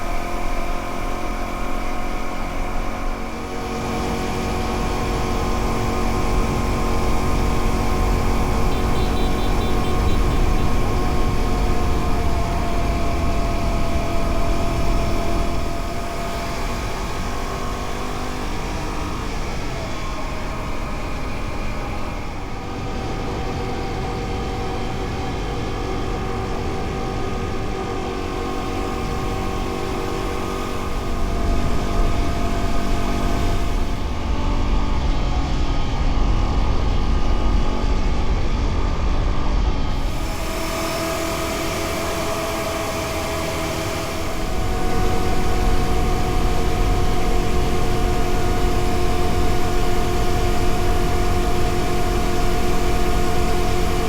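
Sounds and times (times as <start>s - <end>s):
wind and road noise: 0.0s - 54.0s
motorcycle engine running: 6.3s - 14.2s.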